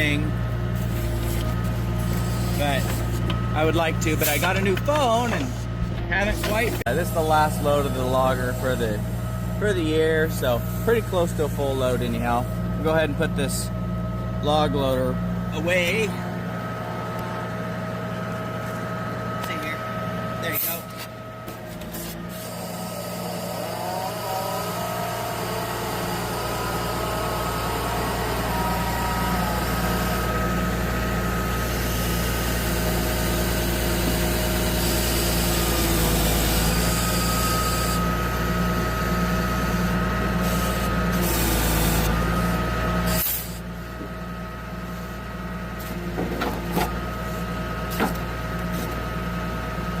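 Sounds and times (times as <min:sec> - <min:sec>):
diesel truck engine revving: 0:00.0 - 0:10.2, 0:22.5 - 0:43.1
metal clanks: 0:00.8 - 0:06.9.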